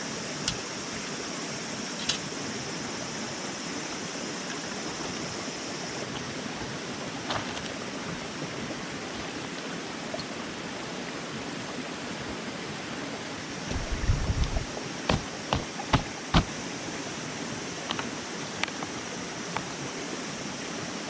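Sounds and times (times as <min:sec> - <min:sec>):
steady rushing noise: 0:13.6 - 0:16.7
low thumps: 0:13.7 - 0:16.5.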